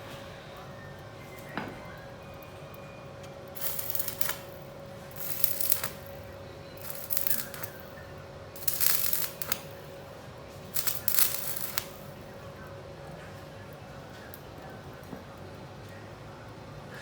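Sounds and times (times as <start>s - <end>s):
welding crackle: 3.4s - 12.4s
steady hum: 3.4s - 14.0s.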